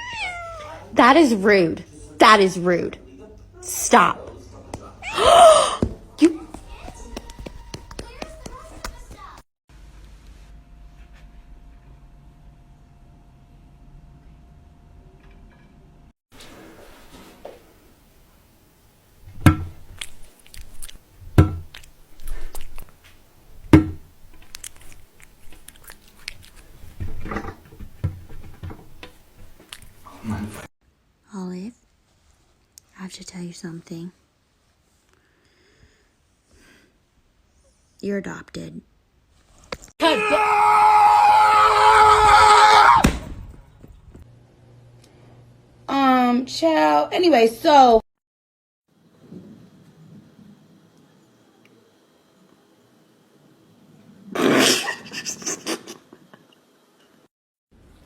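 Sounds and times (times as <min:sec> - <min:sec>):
cat yowling: 0:00.0 - 0:00.9, 0:05.0 - 0:05.8
sharp knocks: 0:19.3 - 0:20.0, 0:21.2 - 0:21.9, 0:23.7 - 0:24.1.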